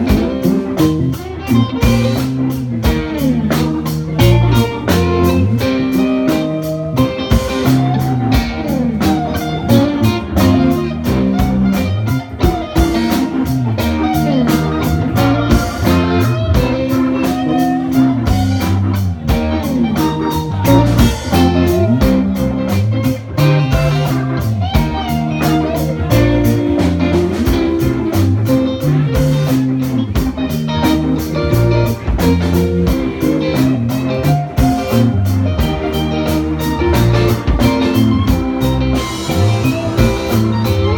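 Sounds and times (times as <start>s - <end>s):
bass guitar notes: 0.0s - 40.9s
electric guitar lines: 0.0s - 40.9s
steady drum beat: 0.0s - 40.9s.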